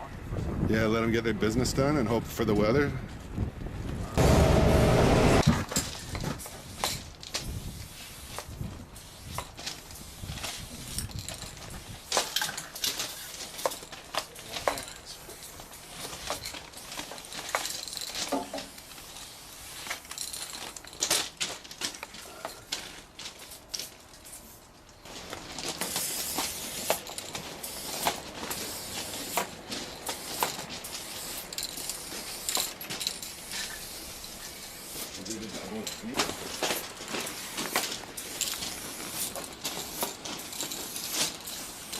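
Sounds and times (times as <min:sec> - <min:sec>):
spray paint hiss: 0:04.6 - 0:13.8, 0:14.6 - 0:20.4, 0:25.7 - 0:41.9
spray can clicks and rattles: 0:05.7 - 0:14.9, 0:25.7 - 0:41.9.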